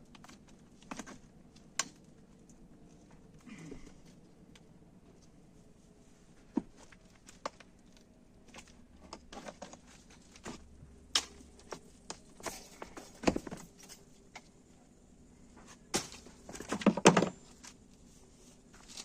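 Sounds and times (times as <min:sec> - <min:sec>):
objects knocking and clattering: 0:16.0 - 0:17.4.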